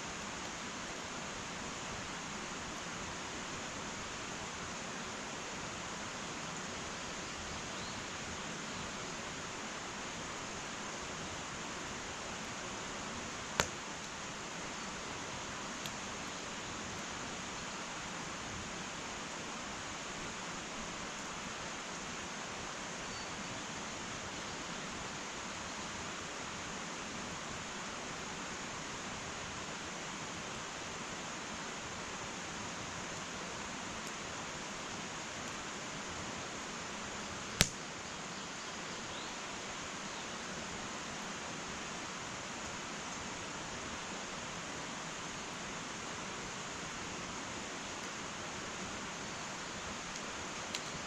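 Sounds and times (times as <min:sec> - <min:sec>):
wood fire hissing: 0:00.0 - 0:23.0, 0:23.6 - 0:51.0
burning wood popping: 0:13.6 - 0:14.1, 0:37.6 - 0:37.8.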